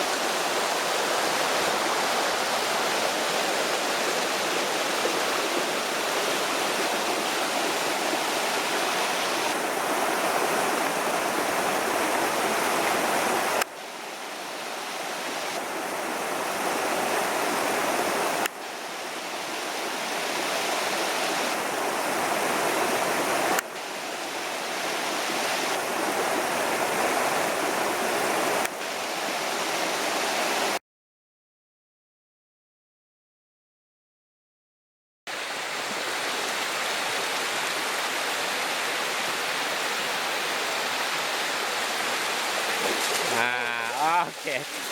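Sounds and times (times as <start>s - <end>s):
stream water rushing: 0.0s - 30.8s, 35.3s - 44.9s.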